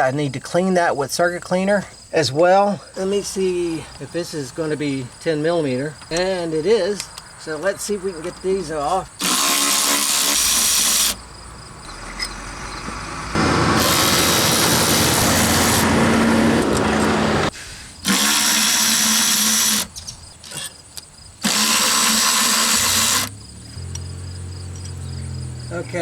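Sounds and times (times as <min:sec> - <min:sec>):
power tool running: 0:09.2 - 0:11.2, 0:13.3 - 0:20.8, 0:21.4 - 0:23.4.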